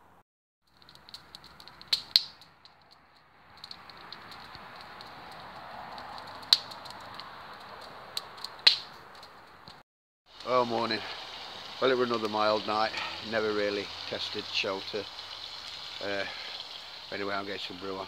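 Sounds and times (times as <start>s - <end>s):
campfire crackling and popping: 0.7s - 18.0s
fire hiss: 3.6s - 8.8s, 10.3s - 18.0s.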